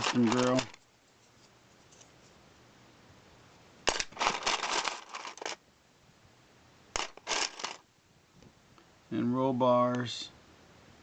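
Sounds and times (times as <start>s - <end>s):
model parts rustling and clattering: 0.0s - 2.4s, 3.9s - 5.6s, 7.0s - 7.8s.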